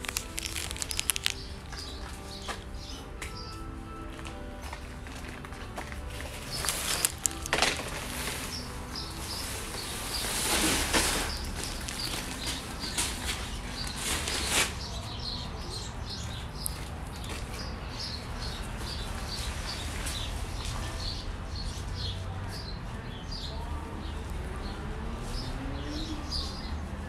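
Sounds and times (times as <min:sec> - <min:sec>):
small bird chirping: 0:00.0 - 0:03.7.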